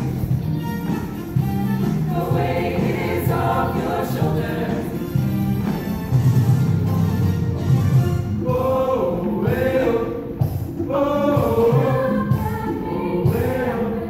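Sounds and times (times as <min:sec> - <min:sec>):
choir singing: 0:01.9 - 0:05.4, 0:08.4 - 0:14.0.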